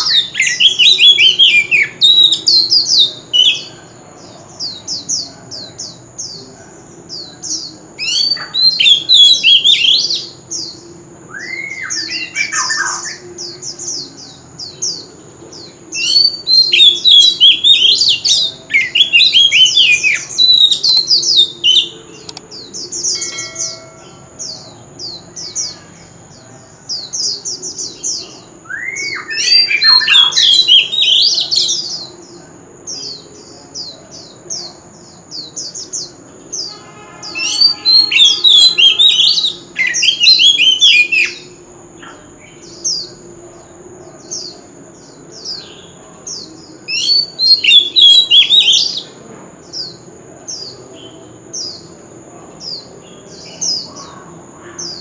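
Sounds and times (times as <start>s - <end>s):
bird singing whistled phrases: 0.0s - 3.8s, 8.0s - 10.7s, 11.3s - 13.6s, 16.0s - 25.8s, 27.9s - 31.9s, 36.6s - 41.5s, 46.9s - 49.1s.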